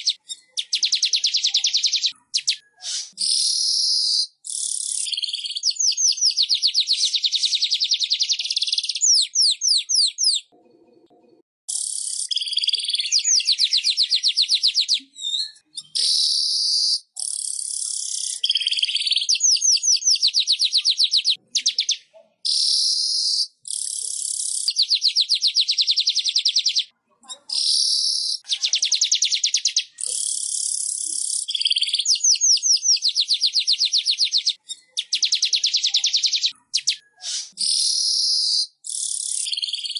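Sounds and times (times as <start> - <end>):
bird chattering trills: 0.0 - 10.5.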